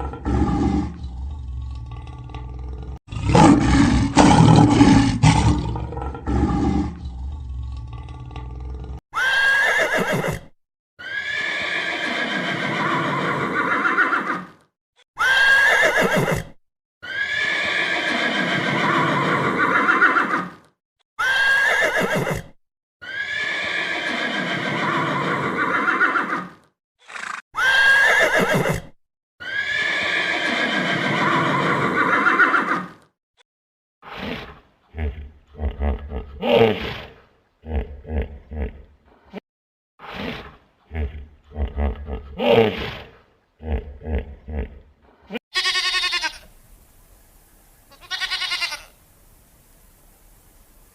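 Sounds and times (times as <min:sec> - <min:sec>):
horse whinnying: 0:09.1 - 0:14.6, 0:15.2 - 0:20.6, 0:21.2 - 0:33.0.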